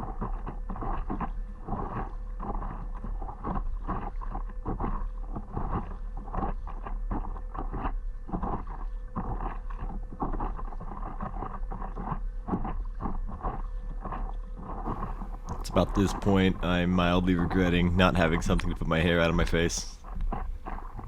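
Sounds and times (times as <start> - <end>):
wind rumble on microphone: 0.0 - 21.0
paddle splashing in water: 14.9 - 19.0.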